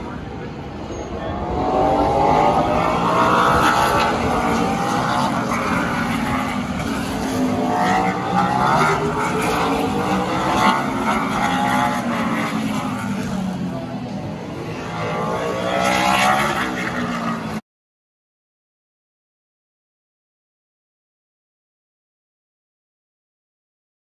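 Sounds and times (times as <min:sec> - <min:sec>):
racing car engines passing by: 0:00.0 - 0:17.6.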